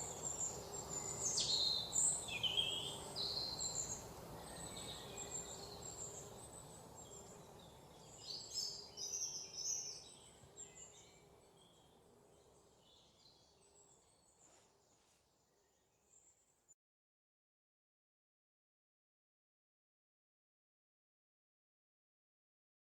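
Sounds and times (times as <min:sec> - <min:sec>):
low background noise: 0:00.0 - 0:16.8.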